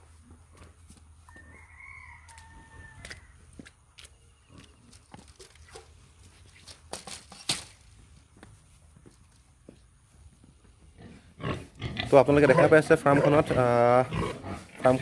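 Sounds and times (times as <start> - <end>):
footsteps: 0.0 - 11.3
rooster crowing: 1.3 - 3.6.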